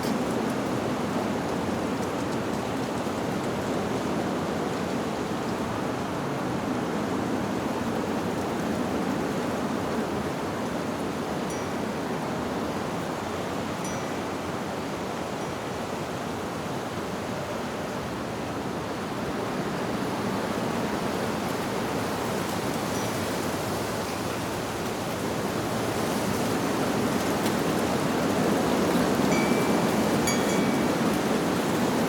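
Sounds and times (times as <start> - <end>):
wind rustling leaves: 0.0 - 32.0
wind chime note: 29.3 - 31.0.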